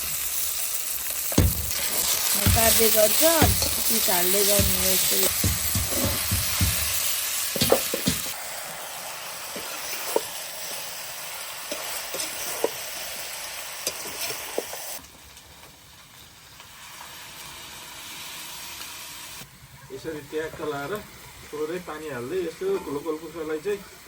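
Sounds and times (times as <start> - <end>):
chicken sizzling in oil: 0.0 - 19.5
ladle knocking and scraping pan: 1.4 - 8.3.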